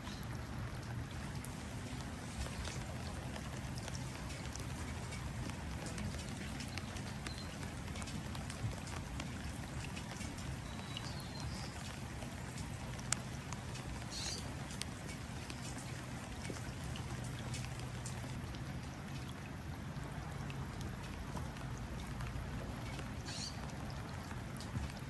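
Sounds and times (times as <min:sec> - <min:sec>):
drops tapping into water: 0:00.0 - 0:19.4
rain pattering: 0:00.0 - 0:25.0
bird chirping: 0:14.1 - 0:14.5, 0:23.3 - 0:23.6.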